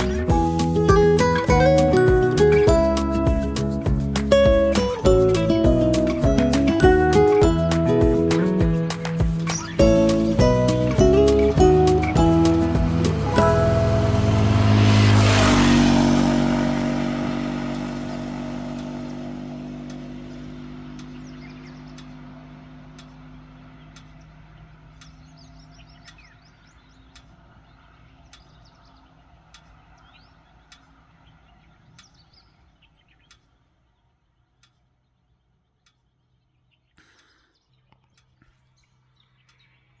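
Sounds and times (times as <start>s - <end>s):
small birds chirping: 0.0s - 13.6s, 17.0s - 40.0s
vehicle engine hum: 0.0s - 40.0s
faint regular ticking: 19.8s - 27.6s, 28.2s - 31.1s, 31.9s - 33.6s, 34.5s - 34.9s, 35.7s - 36.4s.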